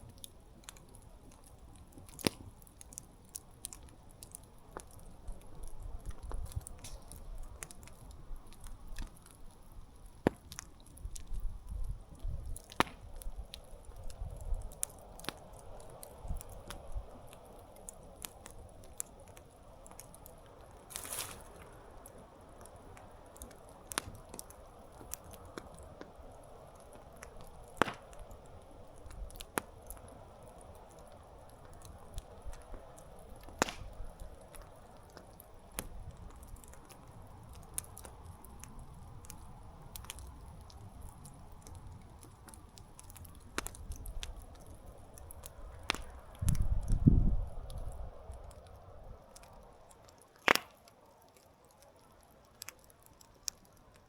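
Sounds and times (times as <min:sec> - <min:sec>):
campfire crackling and popping: 0:00.0 - 0:54.0
hiss of burning: 0:12.0 - 0:44.0.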